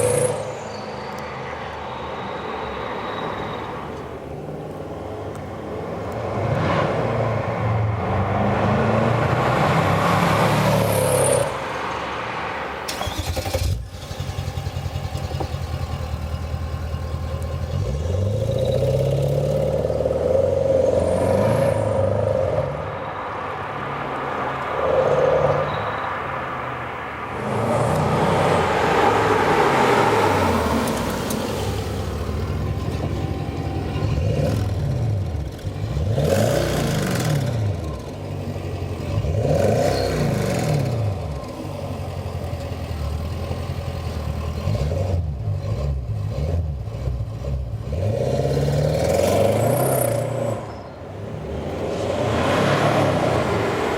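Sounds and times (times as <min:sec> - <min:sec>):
diesel engine revving loud exhaust: 0:27.3 - 0:53.9.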